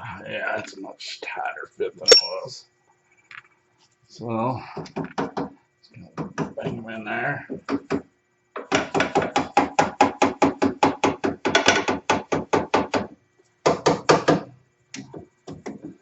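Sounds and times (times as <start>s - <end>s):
hammer blows on bolts: 2.1s - 2.5s.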